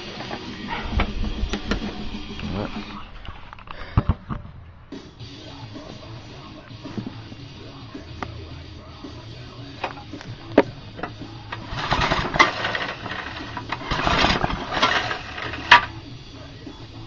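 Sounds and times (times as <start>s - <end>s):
recoil starter cranking engine: 10.9s - 16.0s.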